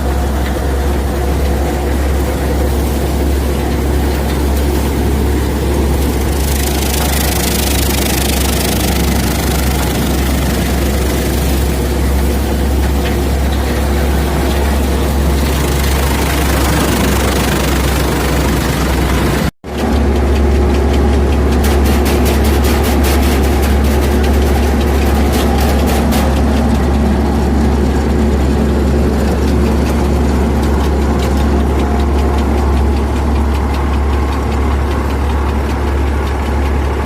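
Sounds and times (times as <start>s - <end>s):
tractor diesel engine droning: 0.0s - 37.0s
threshing machine rushing hiss: 3.9s - 19.4s.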